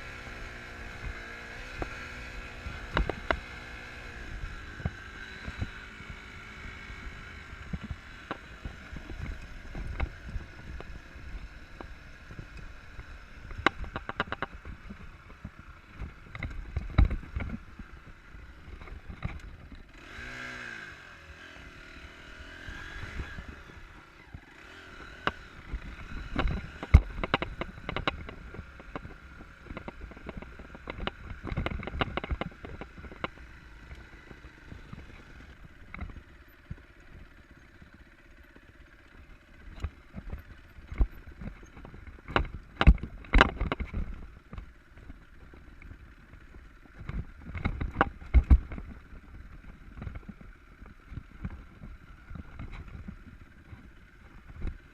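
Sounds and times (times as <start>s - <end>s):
motorcycle engine running: 0.0s - 54.9s
knocks and rattles: 13.4s - 17.8s, 25.2s - 33.5s, 39.6s - 45.6s.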